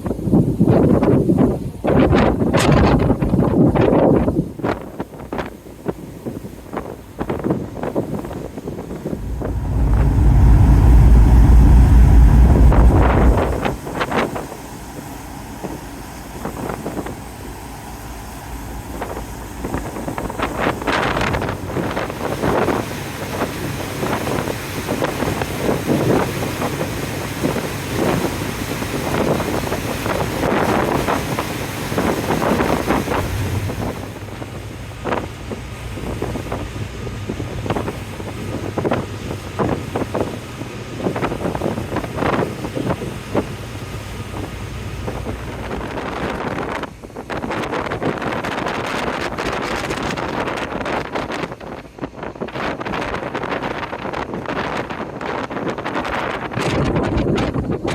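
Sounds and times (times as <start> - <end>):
wind gusting across microphone: 6.6 - 57.9
ship engine drone: 8.9 - 40.6, 41.3 - 47.2.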